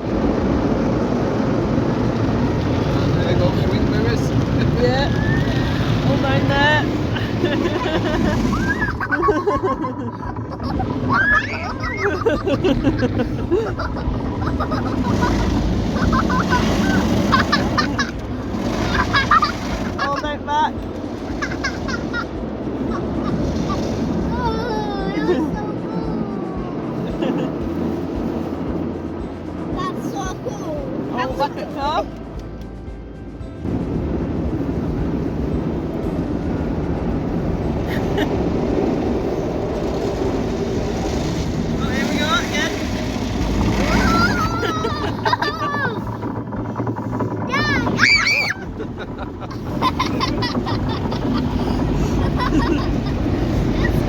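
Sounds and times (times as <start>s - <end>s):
car wash water spray and brushes: 0.0s - 54.0s
voices in car: 2.2s - 13.0s, 15.2s - 21.9s, 22.7s - 32.2s, 41.2s - 46.3s, 46.9s - 49.0s.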